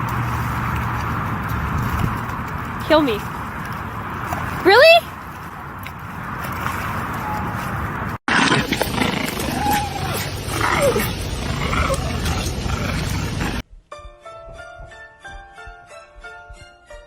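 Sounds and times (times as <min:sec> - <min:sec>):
loud rough background noise: 0:00.0 - 0:13.6
animal growling and yowling: 0:08.3 - 0:13.6
music with clear notes: 0:13.9 - 0:17.0.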